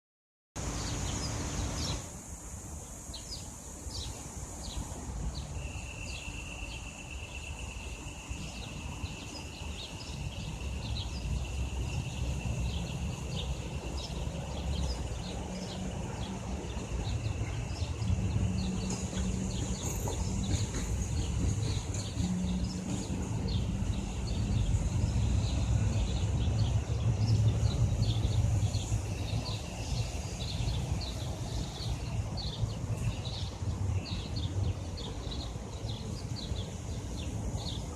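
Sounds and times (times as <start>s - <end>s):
small birds chirping: 3.1s - 37.9s.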